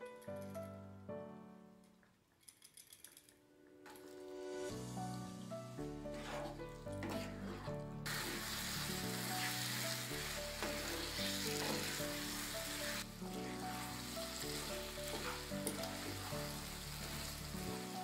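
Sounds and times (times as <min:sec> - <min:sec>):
background music: 0:03.6 - 0:18.0
spatula scraping a pan: 0:05.9 - 0:18.0
chicken sizzling in a pan: 0:08.0 - 0:18.0.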